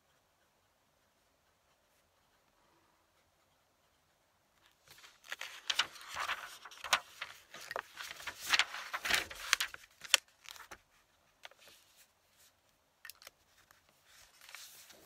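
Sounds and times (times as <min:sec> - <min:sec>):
objects rustling on a desk: 0:04.8 - 0:10.8.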